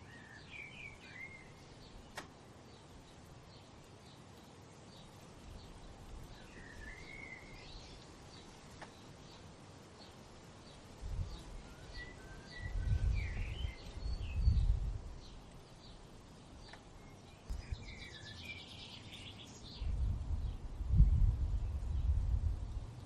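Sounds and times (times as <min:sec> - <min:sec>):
songbirds chirping: 0:00.0 - 0:23.0
wind rumbling on microphone: 0:10.6 - 0:16.7, 0:17.3 - 0:23.0.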